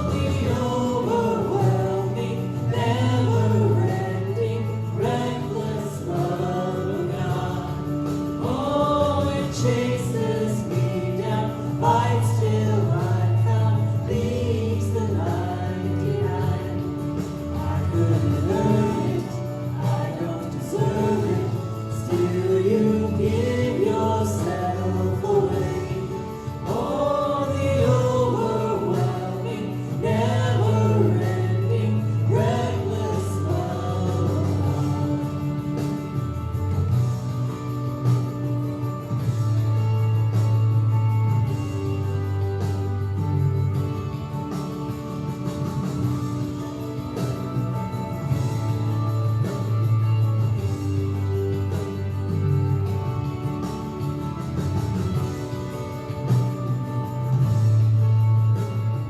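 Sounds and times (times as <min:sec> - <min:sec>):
group of voices singing: 0:00.0 - 0:36.1
instrumental backing with bass: 0:00.0 - 0:59.0.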